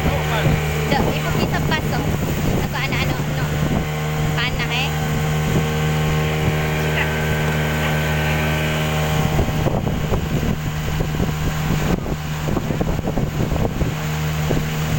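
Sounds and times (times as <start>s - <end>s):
motorboat engine droning: 0.0s - 14.9s.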